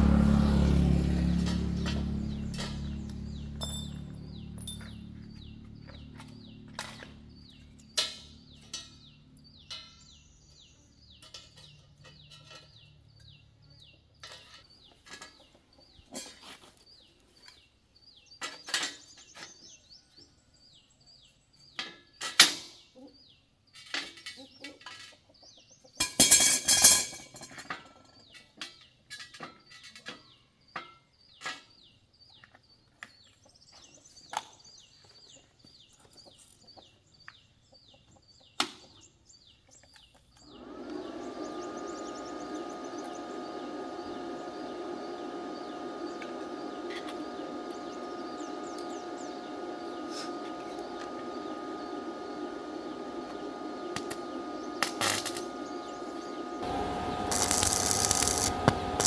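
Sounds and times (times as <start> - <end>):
low hum: 0.0 - 9.6, 40.6 - 59.0
birds chirping: 0.0 - 21.8, 30.7 - 59.0
loud rasping burst: 40.6 - 59.0.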